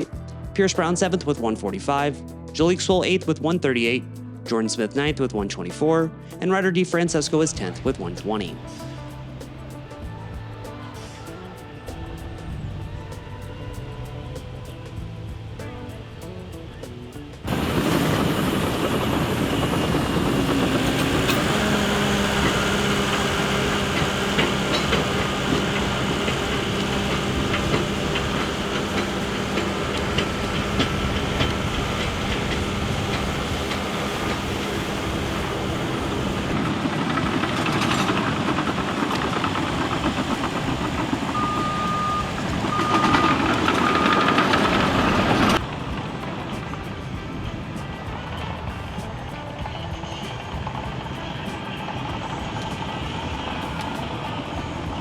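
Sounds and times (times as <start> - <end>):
heavy diesel machinery running: 6.1 - 55.0
reversing alarm beeps: 41.3 - 45.6.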